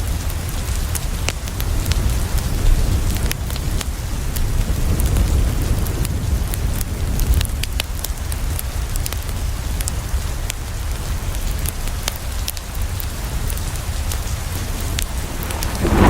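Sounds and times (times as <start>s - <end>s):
rain on a window: 0.0s - 15.9s
wood fire crackling and popping: 5.9s - 16.0s
low rumble: 14.7s - 16.0s.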